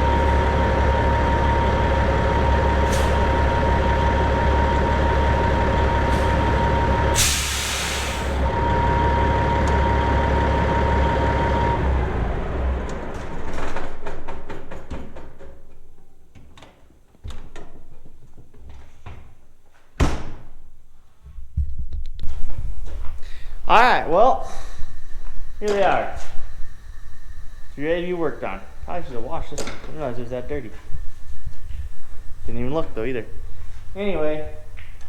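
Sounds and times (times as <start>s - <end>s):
diesel truck engine idling: 0.0s - 16.3s, 23.2s - 35.0s
air brake hiss: 2.8s - 3.4s, 6.0s - 6.5s, 7.1s - 8.5s, 24.4s - 27.8s.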